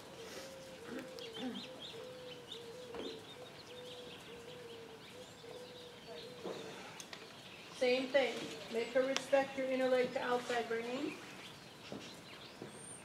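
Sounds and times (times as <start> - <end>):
lower repeated bird call: 0.0 - 7.6.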